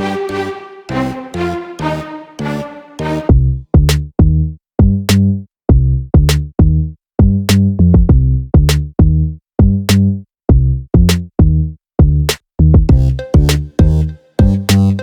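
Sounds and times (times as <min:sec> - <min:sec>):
electronic drum machine beat: 0:12.8 - 0:15.0.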